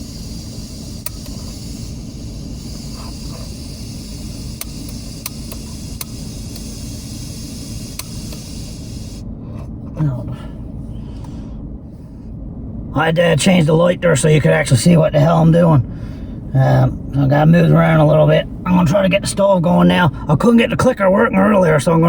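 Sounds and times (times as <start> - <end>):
heater blowing: 0.0 - 9.3
car engine rumbling inside cabin: 0.0 - 22.0.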